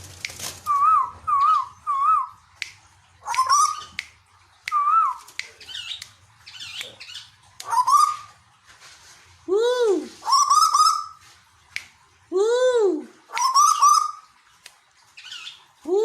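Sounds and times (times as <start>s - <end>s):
koel whistled calls: 0.6s - 2.4s, 3.2s - 4.0s, 4.7s - 6.0s, 7.6s - 8.3s, 10.2s - 11.2s, 13.3s - 14.2s.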